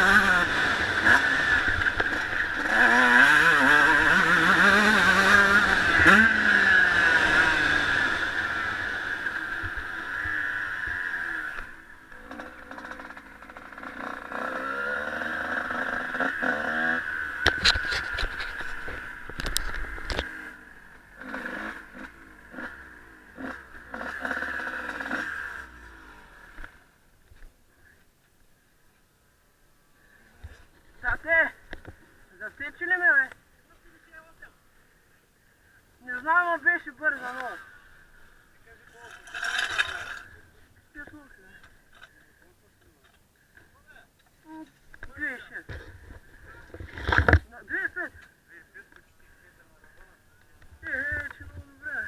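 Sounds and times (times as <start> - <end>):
motocross bike engine revving: 0.0 - 27.0, 35.7 - 42.2, 45.0 - 50.0.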